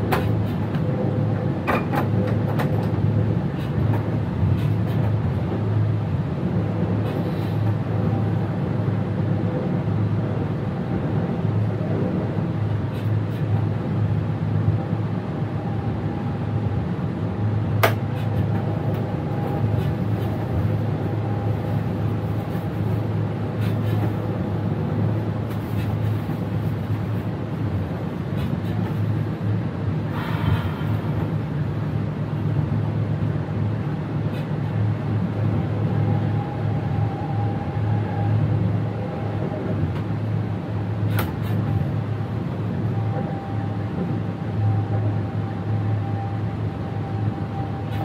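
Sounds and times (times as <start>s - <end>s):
electric train hum and rumble: 0.0s - 48.0s
faint whining tones: 42.7s - 48.0s.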